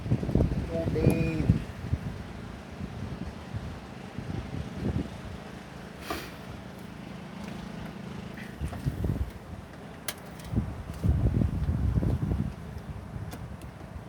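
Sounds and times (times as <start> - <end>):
wind buffeting microphone: 0.0 - 5.4, 8.6 - 9.5, 10.5 - 14.0
snowblower engine running: 0.0 - 10.9.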